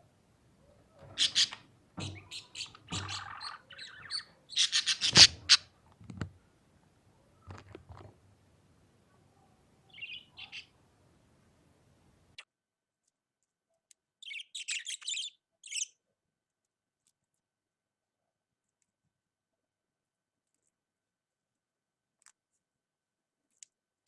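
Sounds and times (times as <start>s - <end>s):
budgerigar chirping: 1.0s - 5.7s, 9.9s - 10.7s.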